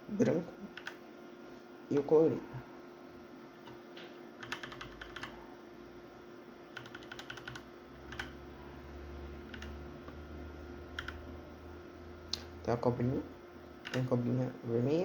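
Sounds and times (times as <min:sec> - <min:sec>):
faint steady hum: 0:00.0 - 0:15.0
mechanical keyboard clicking: 0:00.8 - 0:01.0, 0:04.4 - 0:05.4, 0:06.8 - 0:08.4, 0:09.5 - 0:10.2, 0:11.0 - 0:11.2, 0:13.8 - 0:14.1.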